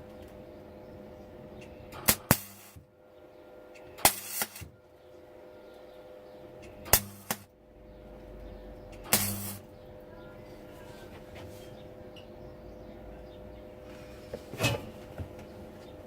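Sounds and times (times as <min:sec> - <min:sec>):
faint steady hum: 0:00.0 - 0:16.0
welding arc crackles: 0:01.9 - 0:02.8, 0:04.0 - 0:04.8, 0:06.9 - 0:07.5, 0:09.0 - 0:09.7.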